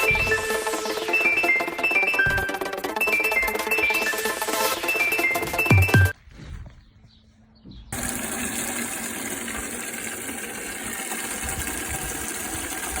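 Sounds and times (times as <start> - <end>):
running water rushing: 8.0 - 13.0.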